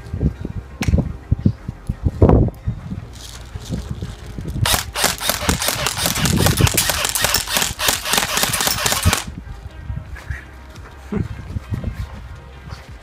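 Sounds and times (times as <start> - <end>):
electric rifle full-auto burst: 4.6 - 9.3.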